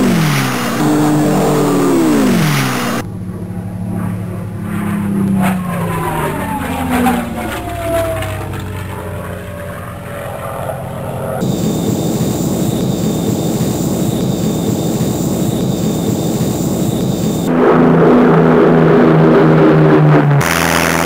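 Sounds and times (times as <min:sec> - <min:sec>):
hissy engine with high whine: 0:00.0 - 0:06.6, 0:09.4 - 0:18.4
propeller aircraft engine droning: 0:00.0 - 0:21.0.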